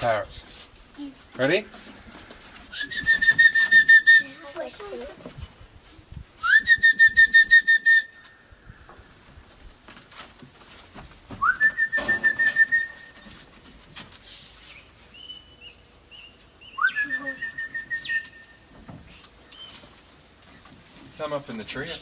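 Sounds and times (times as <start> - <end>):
person whistling with warble: 2.7 - 4.4, 6.4 - 8.2, 11.4 - 13.1, 16.7 - 18.4.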